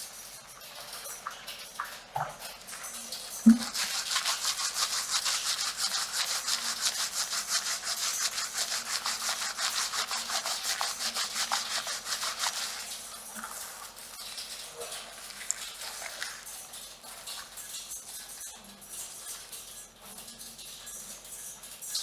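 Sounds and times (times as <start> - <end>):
fingers scratching through hair: 3.4 - 13.9, 14.9 - 17.6.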